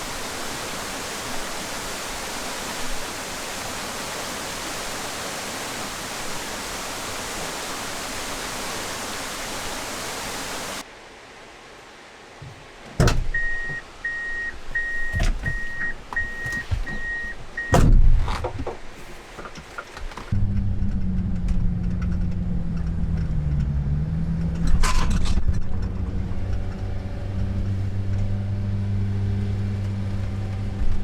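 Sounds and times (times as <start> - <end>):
waterfall rushing: 0.0 - 13.0
short electronic beeps: 13.4 - 17.8
heavy thumps: 14.7 - 20.4.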